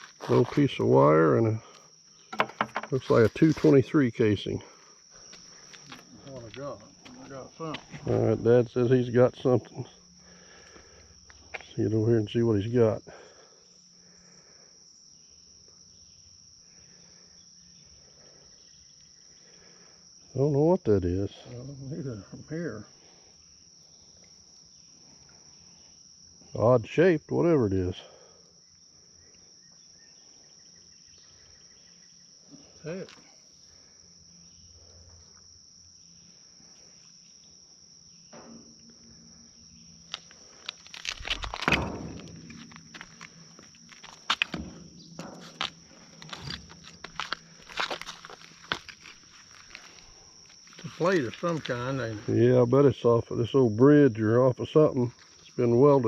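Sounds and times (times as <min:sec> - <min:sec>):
crickets trilling: 0:00.0 - 0:56.0
high-pitched insect chorus: 0:00.0 - 0:56.0
sharp clattering knocks: 0:02.3 - 0:03.0, 0:41.0 - 0:47.9.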